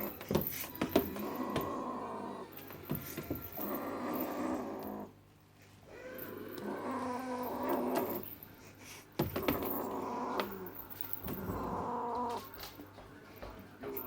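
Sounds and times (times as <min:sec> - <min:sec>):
kittens meowing: 0:11.3 - 0:12.5.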